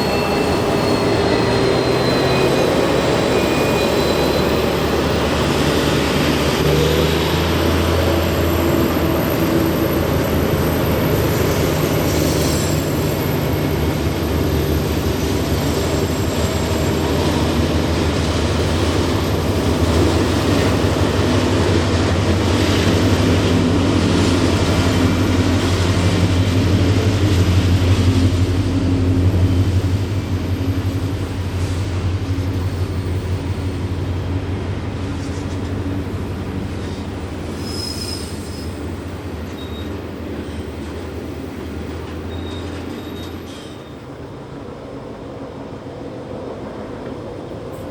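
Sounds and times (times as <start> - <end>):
diesel locomotive engine drone: 0.0 - 47.9.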